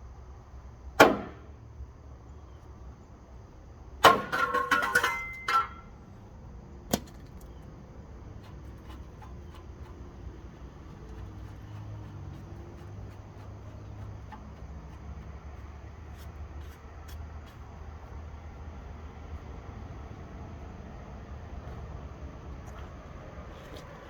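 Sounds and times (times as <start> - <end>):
metal parts clattering: 4.3 - 5.8.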